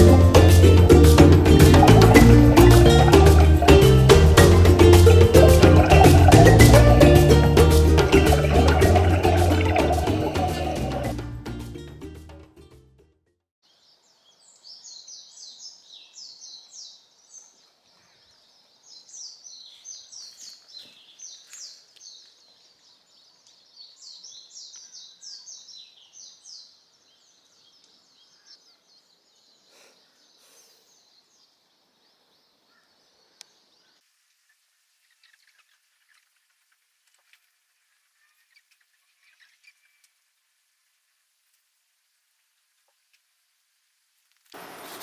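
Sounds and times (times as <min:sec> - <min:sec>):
birds chirping: 0:00.0 - 0:11.2
faint background hiss: 0:13.6 - 0:45.0.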